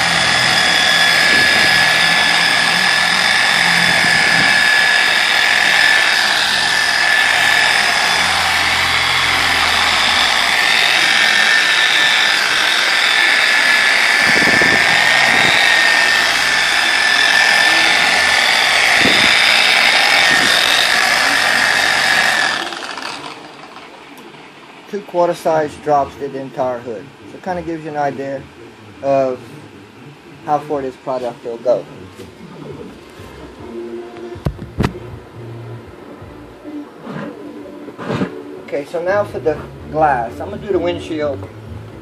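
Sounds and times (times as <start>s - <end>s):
polisher whining: 0.0s - 24.4s.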